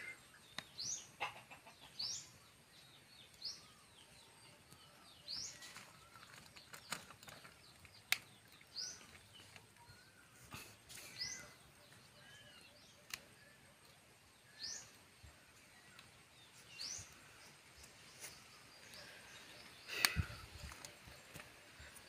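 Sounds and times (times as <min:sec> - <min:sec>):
faint outdoor background noise: 0:00.0 - 0:22.0.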